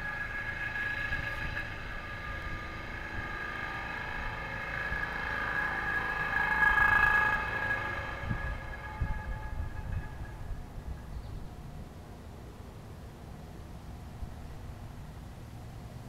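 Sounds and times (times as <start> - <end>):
train air horn chord: 0.0 - 11.1
low engine rumble: 0.0 - 16.0.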